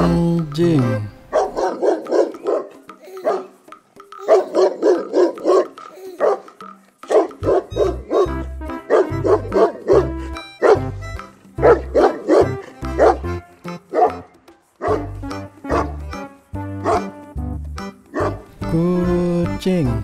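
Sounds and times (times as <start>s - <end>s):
background music with bass: 0.0s - 2.9s, 7.1s - 20.0s
dog barking: 1.3s - 3.6s, 4.2s - 10.9s, 11.6s - 13.3s, 13.9s - 16.0s, 16.8s - 17.1s, 18.1s - 18.5s.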